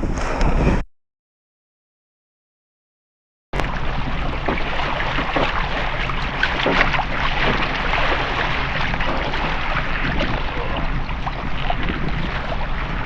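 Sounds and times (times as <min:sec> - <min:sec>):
wind rumble on microphone: 0:00.0 - 0:00.8, 0:03.6 - 0:13.0
water splashing around kayak: 0:03.6 - 0:13.0.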